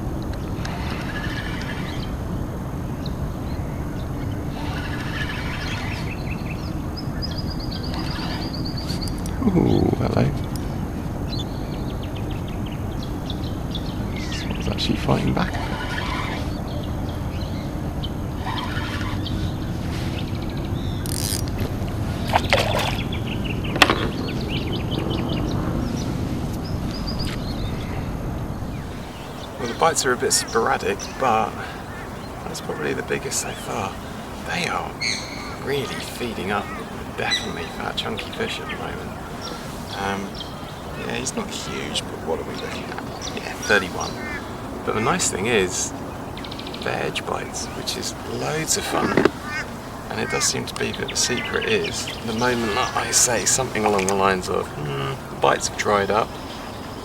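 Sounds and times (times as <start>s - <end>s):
birds chirping: 0.0s - 57.0s
steady low rumble: 0.0s - 57.0s
steady low rushing: 0.0s - 57.0s
water splashes and knocks: 48.9s - 49.4s.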